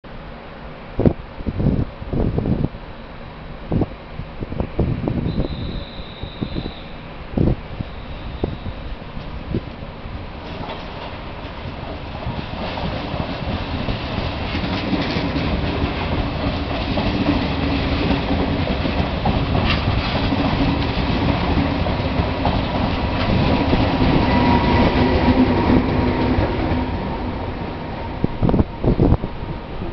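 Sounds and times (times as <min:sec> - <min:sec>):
train running hum: 0:00.1 - 0:29.9
train wheels clattering over rail joints: 0:10.4 - 0:27.4.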